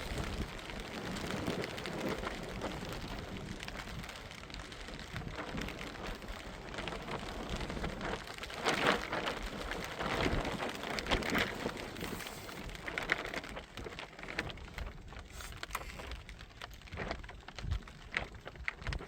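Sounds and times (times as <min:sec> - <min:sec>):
rain pattering: 0:00.0 - 0:19.0.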